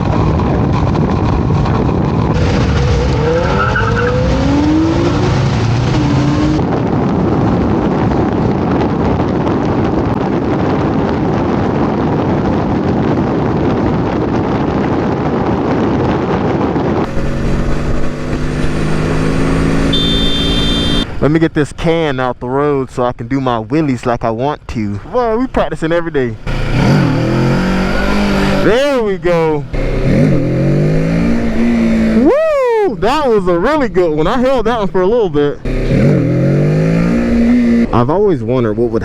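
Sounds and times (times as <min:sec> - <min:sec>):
motorcycle engine running: 0:00.0 - 0:03.1, 0:17.0 - 0:21.2
wind and road noise: 0:00.0 - 0:39.0.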